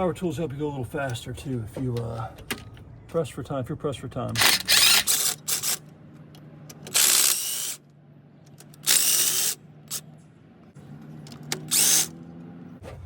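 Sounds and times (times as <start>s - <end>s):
cordless power tool whining: 4.4s - 5.7s, 11.5s - 12.2s.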